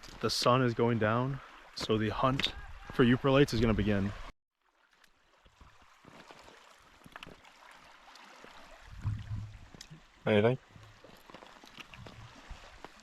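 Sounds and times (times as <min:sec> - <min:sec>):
water lapping on shore: 0:00.0 - 0:13.0
low thump: 0:09.0 - 0:09.6.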